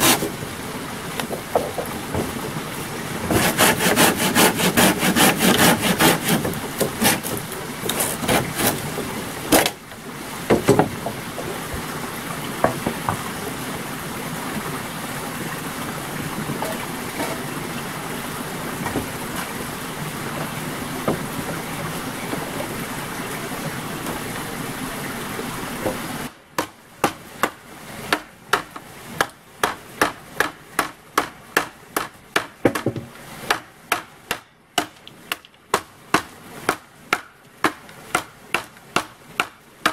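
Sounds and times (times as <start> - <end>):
hand saw on wood: 0.0 - 0.4, 3.3 - 8.9.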